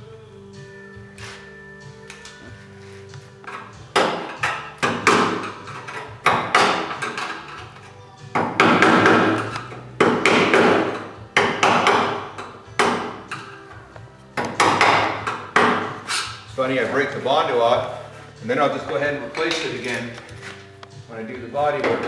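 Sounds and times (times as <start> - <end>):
hammer striking sheet metal: 8.5 - 13.5.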